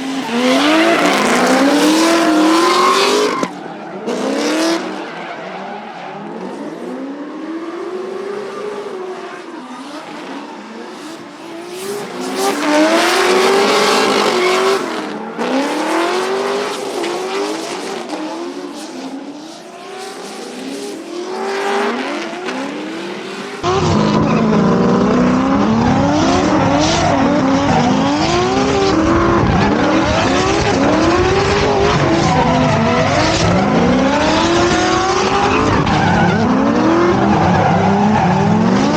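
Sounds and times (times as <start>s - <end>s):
tire squeal: 0.0s - 6.7s, 9.2s - 18.1s, 25.8s - 38.9s
car engines revving: 0.0s - 38.9s.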